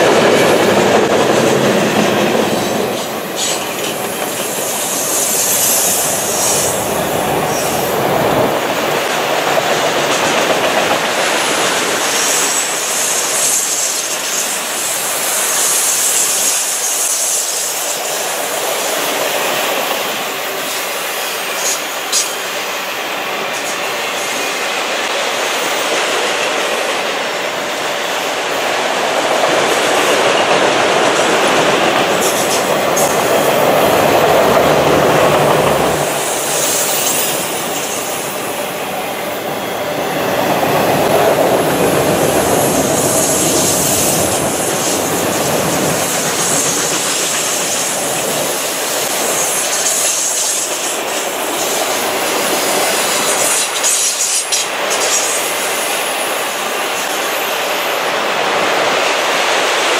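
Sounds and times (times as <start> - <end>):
freight train wheels rumbling: 0.0 - 59.9
high wheel squeal: 2.4 - 8.1.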